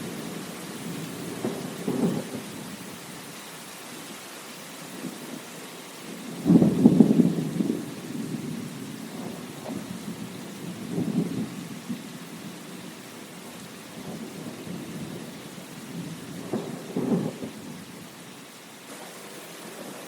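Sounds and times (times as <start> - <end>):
thunder rumbling: 0.0 - 3.0, 6.1 - 18.2
steady rain falling: 0.0 - 20.0.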